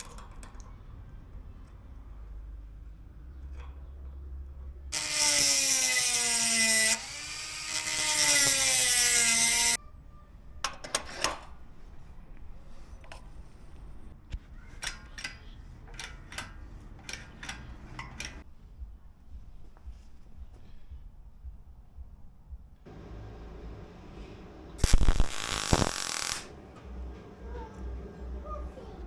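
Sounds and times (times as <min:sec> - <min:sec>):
power drill running: 0:05.0 - 0:09.8, 0:24.8 - 0:26.5
sharp clicks: 0:24.8 - 0:26.5.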